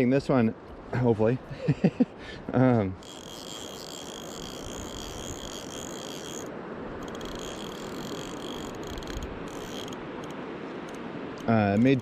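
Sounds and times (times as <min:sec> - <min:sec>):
river water rushing: 0:02.2 - 0:12.0
fly reel ratchet buzzing: 0:03.0 - 0:11.0.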